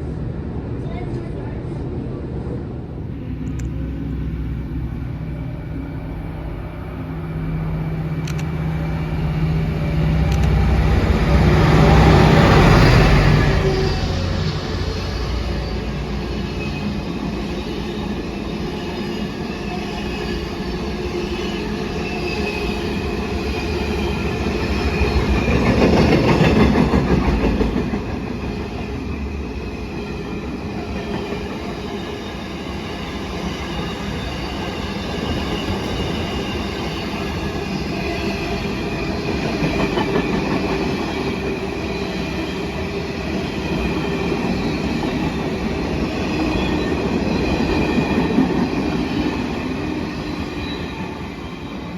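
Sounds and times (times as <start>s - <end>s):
train wheels rumbling on rail: 0.0s - 51.9s.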